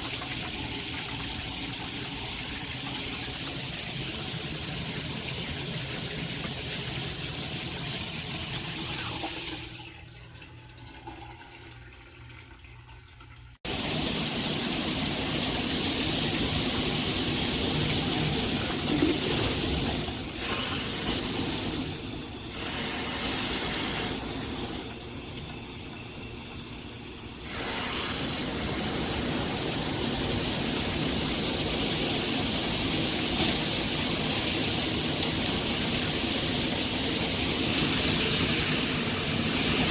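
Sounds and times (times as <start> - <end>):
shower water spraying: 13.7 - 26.3, 27.4 - 39.9.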